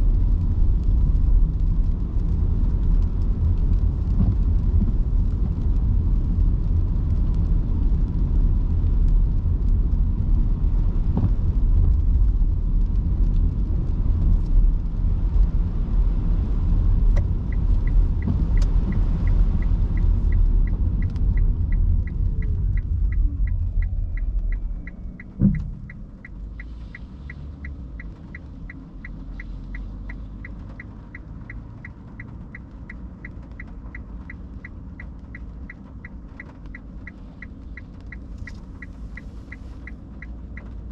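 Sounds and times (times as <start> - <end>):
road and tyre rumble: 0.0 - 40.9
turn-signal ticking: 17.0 - 40.9
car stopping thump: 25.2 - 26.1.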